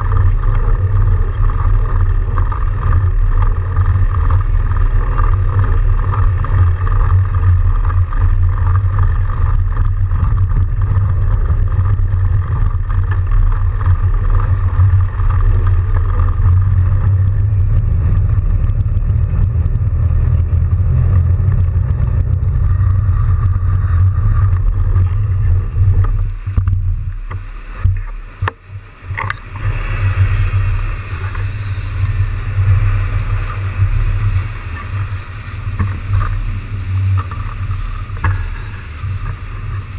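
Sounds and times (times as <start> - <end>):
bike tyres on snow: 0.0 - 39.9
wind rumble on microphone: 0.0 - 39.9.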